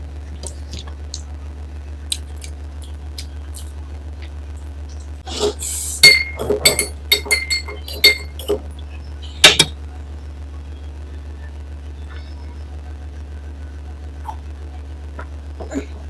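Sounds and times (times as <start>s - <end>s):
tableware clinking: 6.0s - 8.7s.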